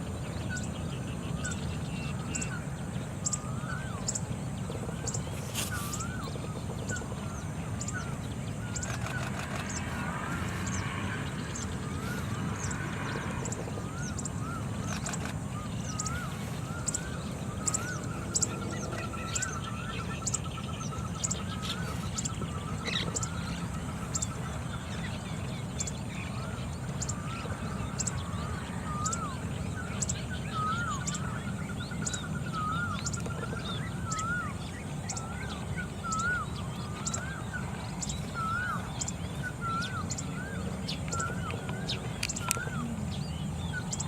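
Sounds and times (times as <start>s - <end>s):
bird trill: 0.0s - 44.0s
bird whistled calls: 5.6s - 7.1s, 30.0s - 37.4s, 38.0s - 43.0s.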